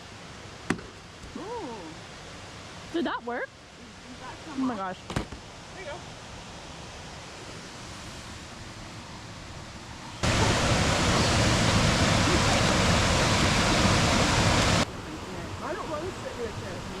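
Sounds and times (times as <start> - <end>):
waterfall rushing: 5.6 - 17.0.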